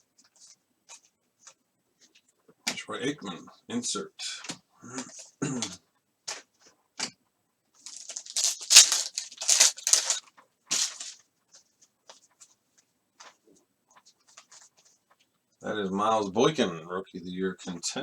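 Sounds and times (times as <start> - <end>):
cards clicking while handled: 7.9 - 11.2
foil wrapper tearing and crinkling: 7.9 - 11.2.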